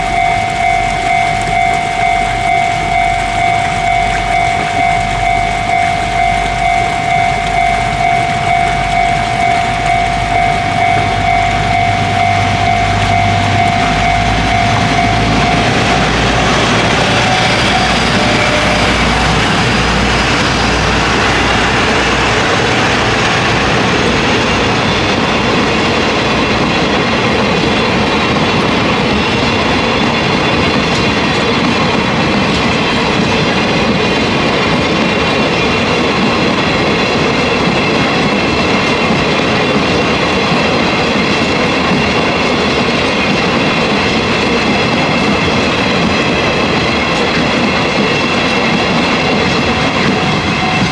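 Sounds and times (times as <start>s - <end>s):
high wheel squeals: 0.0s - 25.7s, 47.0s - 50.9s
level crossing warning bell: 0.0s - 50.9s
locomotive diesel engine: 0.0s - 50.9s.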